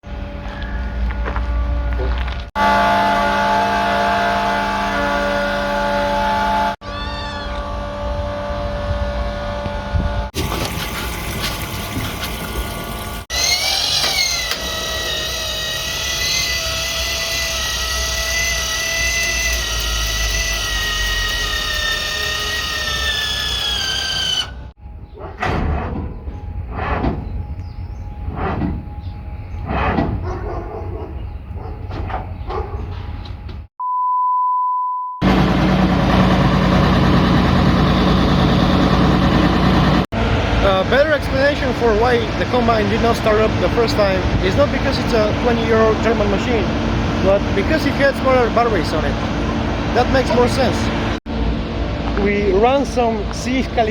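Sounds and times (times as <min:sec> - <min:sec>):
machinery whining and rumbling: 0:00.0 - 0:33.7, 0:35.2 - 0:53.9
combine harvester engine running: 0:02.6 - 0:06.8, 0:35.2 - 0:52.2
electronic beep tone: 0:33.8 - 0:35.2.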